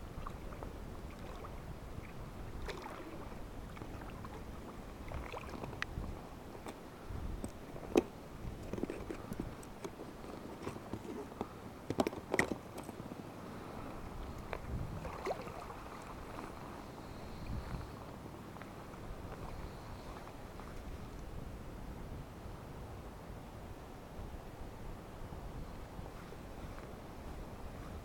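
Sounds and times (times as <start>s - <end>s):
knocks and clicks on boat: 7.4s - 13.0s.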